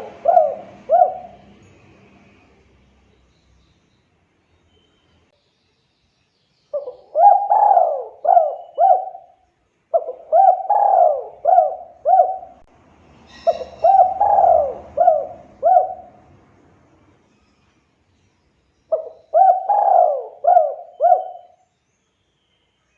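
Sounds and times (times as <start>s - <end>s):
dove cooing: 0.0s - 1.7s, 6.8s - 12.7s, 13.3s - 16.3s, 18.9s - 21.6s
high bird chirp: 2.9s - 9.4s, 10.0s - 16.1s, 17.2s - 22.9s.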